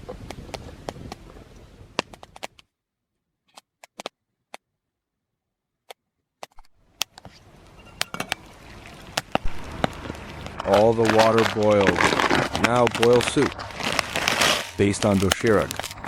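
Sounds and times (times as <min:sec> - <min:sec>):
wood fire crackling: 0:06.6 - 0:16.0.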